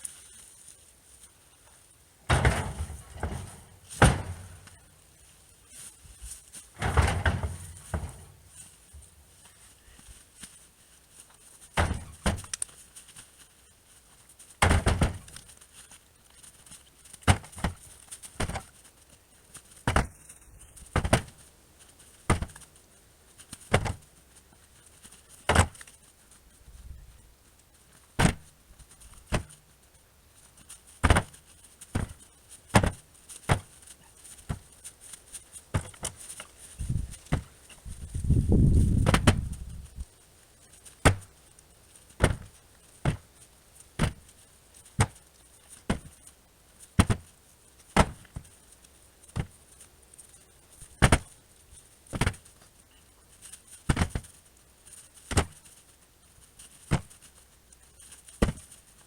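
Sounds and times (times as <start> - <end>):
firewood knocking against wood: 2.3 - 4.8, 6.8 - 8.4.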